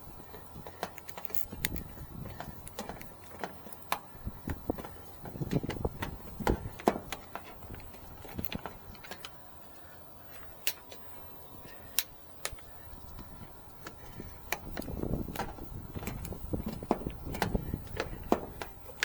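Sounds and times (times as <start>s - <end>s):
tools clicking and tapping: 0.2s - 9.4s.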